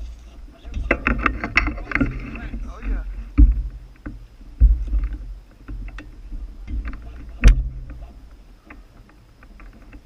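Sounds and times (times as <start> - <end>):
heavy dull thumps: 0.7 - 9.7
clicks and rattles: 0.7 - 10.0.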